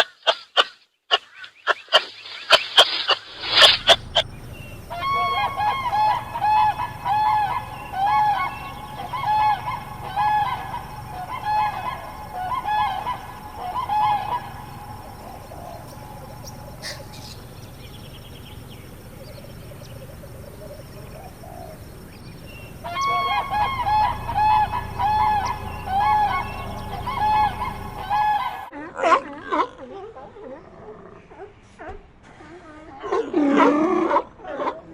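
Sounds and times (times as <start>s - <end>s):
goose honking: 3.3s - 28.7s.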